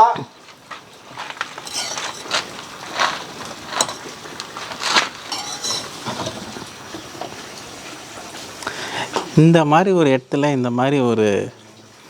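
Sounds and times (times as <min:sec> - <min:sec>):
dishes and utensils clinking: 0:01.6 - 0:07.4.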